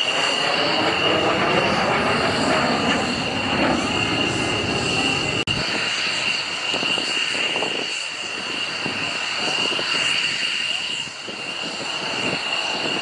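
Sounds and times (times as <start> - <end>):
aircraft engine rushing and whining: 0.0 - 13.0.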